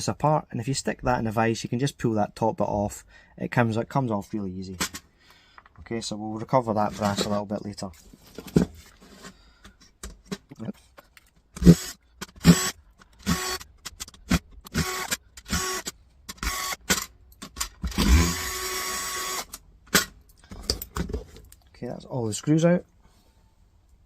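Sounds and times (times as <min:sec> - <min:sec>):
electric screwdriver whirring: 0:11.6 - 0:13.6, 0:14.7 - 0:17.0, 0:17.9 - 0:19.6.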